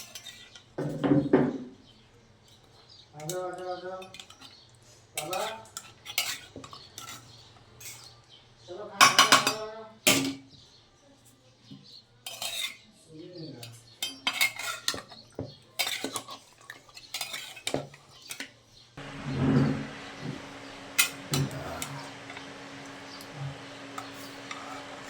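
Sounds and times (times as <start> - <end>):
metal spoon clinking on pot: 0.0 - 0.7, 4.0 - 4.6, 5.2 - 8.1, 12.2 - 12.8, 13.6 - 15.2, 15.8 - 18.4.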